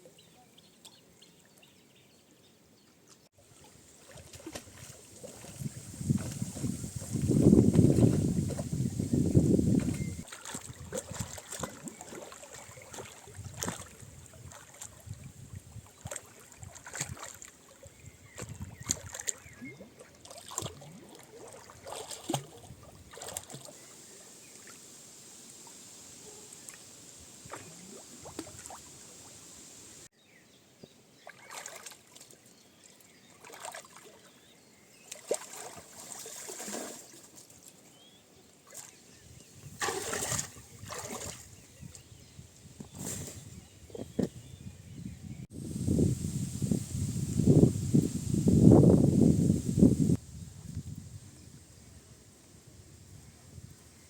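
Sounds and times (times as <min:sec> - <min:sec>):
water splashing and sloshing: 0:03.1 - 0:29.8, 0:31.2 - 0:38.0, 0:38.6 - 0:42.0.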